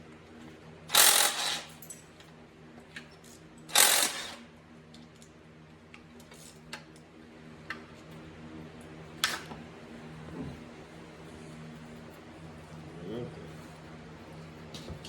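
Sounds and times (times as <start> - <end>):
steady low hum: 7.2 - 15.0.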